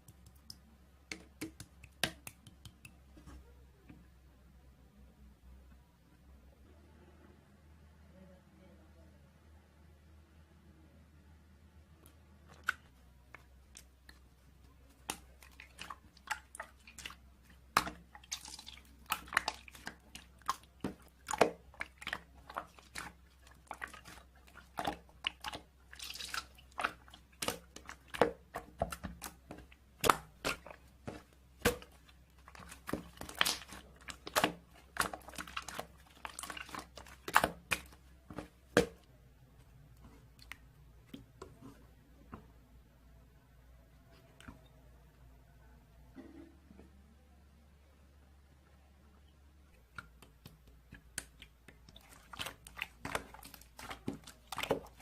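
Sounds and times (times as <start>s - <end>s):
slime squishing with wet clicks: 0.0s - 4.1s, 12.0s - 42.6s, 44.0s - 44.8s, 49.2s - 55.0s.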